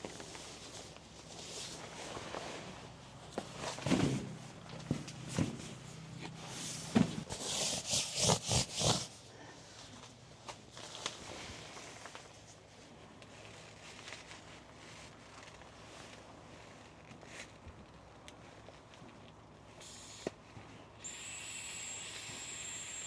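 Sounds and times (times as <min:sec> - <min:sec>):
rubbing and rustling: 0:05.3 - 0:09.2.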